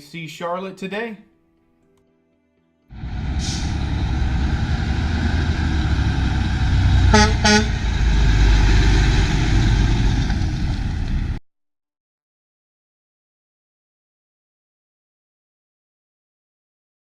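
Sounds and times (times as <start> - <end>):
diesel truck engine running: 3.0 - 11.4
horn toots: 7.0 - 7.9.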